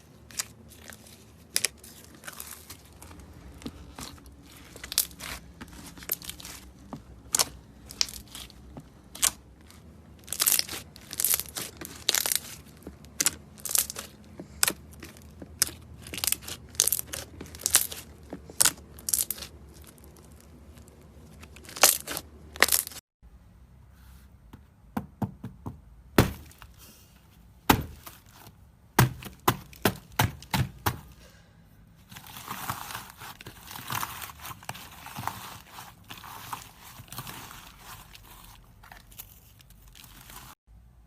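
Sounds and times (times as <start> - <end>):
slime crackling and popping: 10.2 - 14.8.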